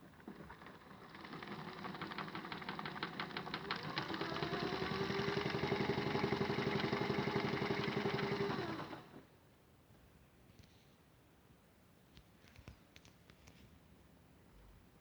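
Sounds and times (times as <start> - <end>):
toy washing machine motor clatter: 0.0 - 9.2
steady motor hum: 1.0 - 9.2.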